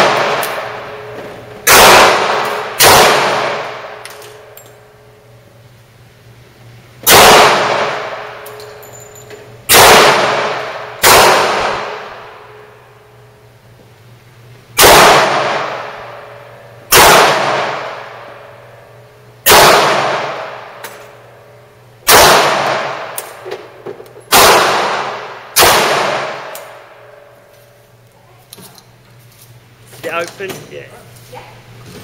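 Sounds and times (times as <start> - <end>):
pistol shots echoing: 0.0 - 4.5, 7.0 - 8.5, 9.7 - 12.4, 14.8 - 16.2, 16.9 - 18.4, 19.4 - 21.2, 22.0 - 23.4, 24.3 - 26.9.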